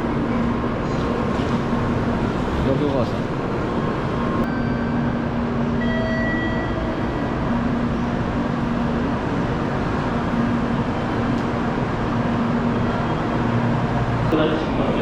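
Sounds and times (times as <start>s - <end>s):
train humming at platform: 0.0s - 15.0s
low steady tone: 4.4s - 9.0s.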